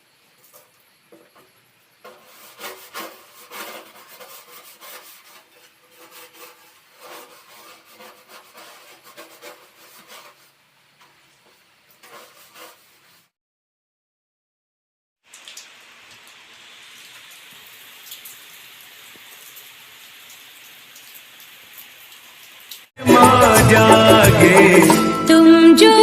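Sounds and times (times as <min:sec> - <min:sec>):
hand scrubbing strokes: 0:02.0 - 0:13.3.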